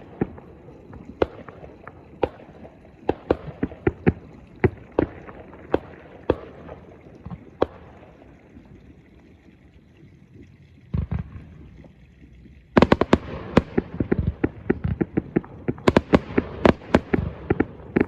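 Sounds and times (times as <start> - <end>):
firework crackling: 12.8 - 18.0.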